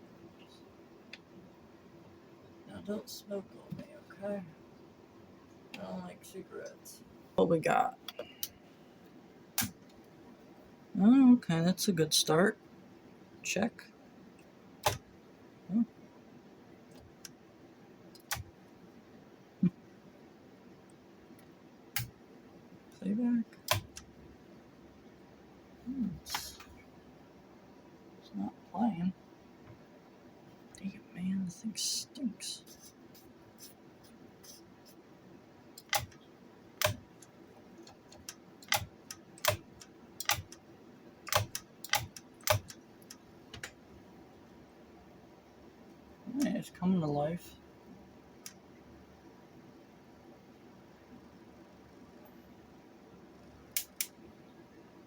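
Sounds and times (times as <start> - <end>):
sharp switch clicks: 9.6 - 9.8, 14.8 - 15.0, 18.2 - 18.5, 22.0 - 22.2, 23.6 - 24.1, 35.8 - 36.2, 36.8 - 37.1, 37.9 - 40.6, 41.3 - 43.8, 53.7 - 54.2.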